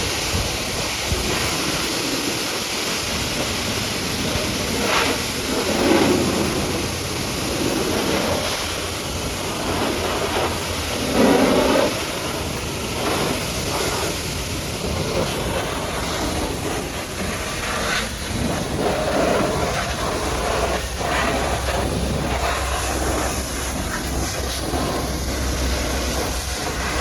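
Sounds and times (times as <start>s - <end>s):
pressure washer spraying water: 0.0s - 27.0s.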